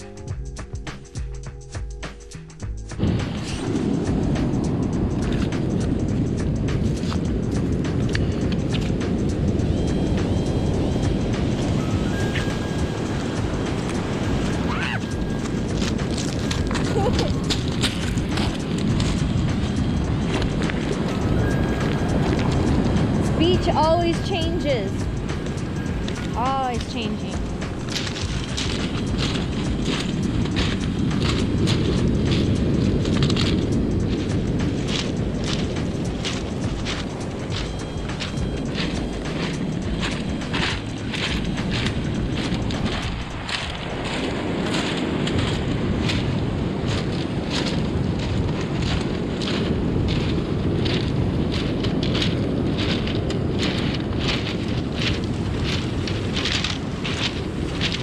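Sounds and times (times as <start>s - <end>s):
wind: 0.0s - 58.0s
surf: 2.9s - 58.0s
crackling clicks: 12.4s - 23.0s, 24.1s - 58.0s.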